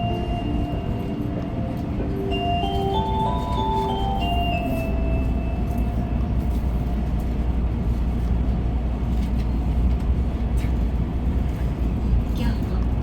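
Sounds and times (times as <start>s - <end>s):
onboard chime melody: 0.0s - 1.4s, 2.0s - 6.2s
train rumble inside cabin: 0.0s - 13.0s.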